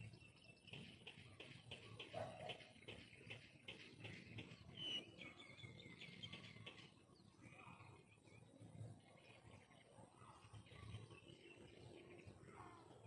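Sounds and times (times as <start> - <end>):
faint bird chirps: 4.0 - 13.0.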